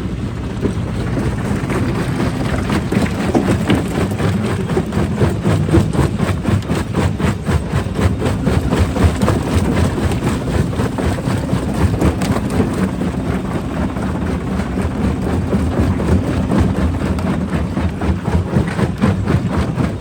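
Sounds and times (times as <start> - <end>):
rock-crushing machinery rumbling: 0.0 - 20.0
rocks cracking and knocking: 0.6 - 6.9.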